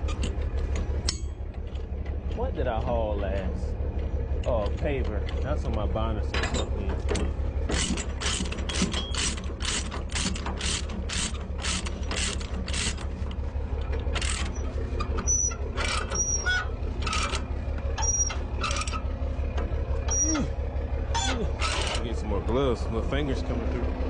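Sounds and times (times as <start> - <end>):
ratchet pawl clicking: 7.7 - 13.1.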